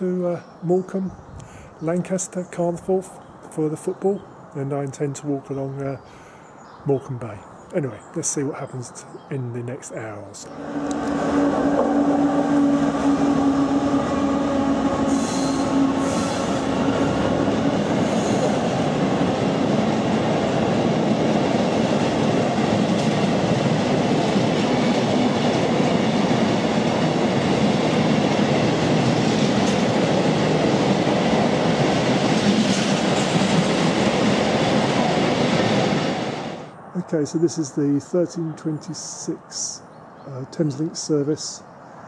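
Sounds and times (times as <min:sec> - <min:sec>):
train wheels rumbling on rails: 0:10.4 - 0:36.7
high wheel squeals: 0:10.5 - 0:17.3.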